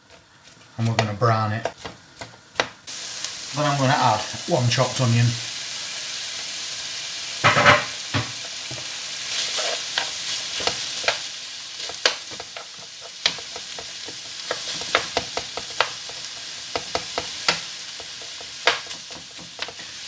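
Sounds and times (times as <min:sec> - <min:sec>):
meat sizzling in a frying pan: 0:00.0 - 0:20.0
utensil knocking against pan: 0:07.4 - 0:08.4.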